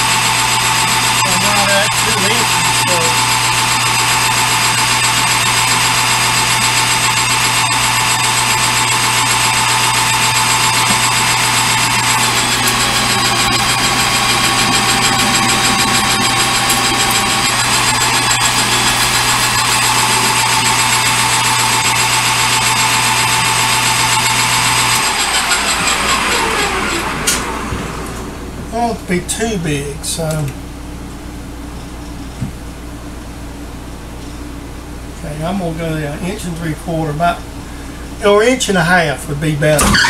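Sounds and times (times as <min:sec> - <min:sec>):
metal lathe motor whine: 0:00.0 - 0:29.0.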